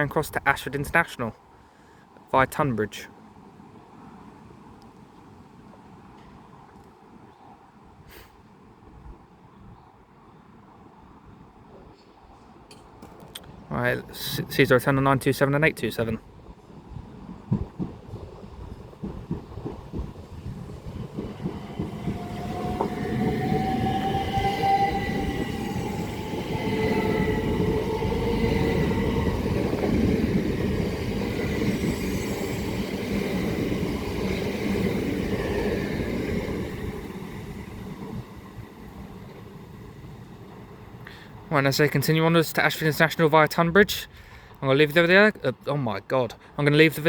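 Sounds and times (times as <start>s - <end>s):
train wheels rumbling: 16.8s - 42.0s
train whine rising in pitch: 20.6s - 40.9s.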